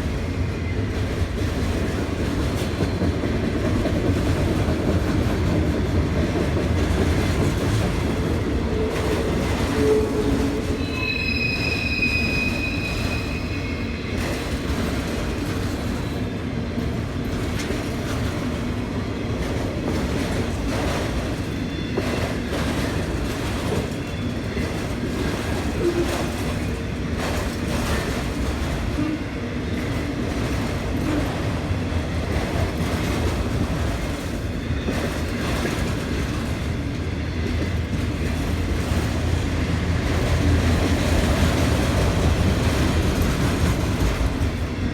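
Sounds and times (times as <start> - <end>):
train wheels rumbling on rails: 0.0 - 44.9
high wheel squeal: 9.7 - 14.4.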